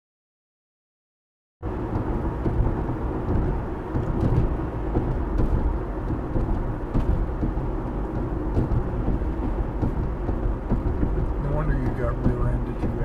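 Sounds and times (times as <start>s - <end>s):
car road and engine rumble: 1.6s - 13.0s.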